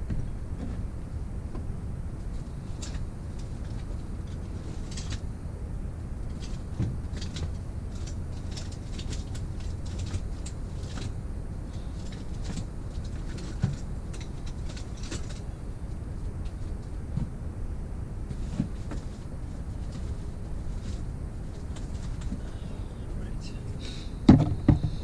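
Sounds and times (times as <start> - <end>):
steady low hum: 0.0 - 25.0
loud knocks: 24.3 - 25.0.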